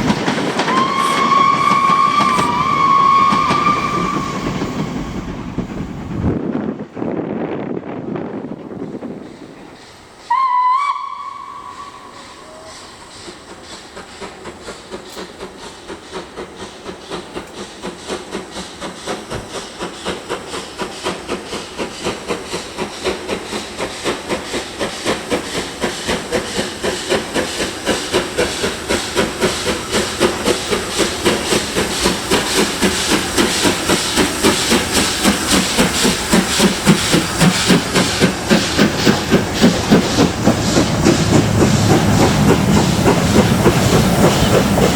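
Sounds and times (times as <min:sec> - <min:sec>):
steam locomotive exhaust beats: 0:00.0 - 0:44.9
train whistle: 0:00.6 - 0:05.3, 0:10.3 - 0:13.4.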